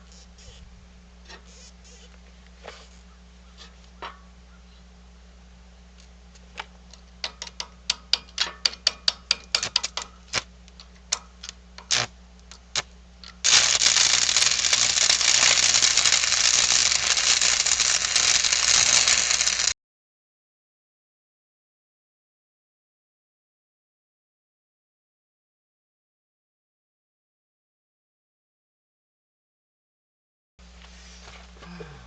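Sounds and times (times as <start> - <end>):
sharp clicks and pops: 7.2 - 19.7
welding arc crackling: 11.8 - 19.8.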